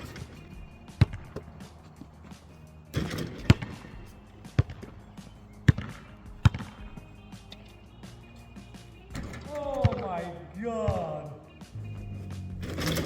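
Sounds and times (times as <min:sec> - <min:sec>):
basketball bouncing on hard ground: 0:00.0 - 0:07.2.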